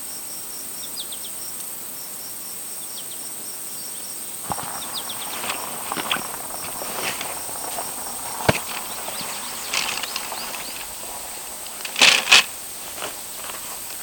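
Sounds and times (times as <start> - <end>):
rustling crunches: 4.4 - 14.0.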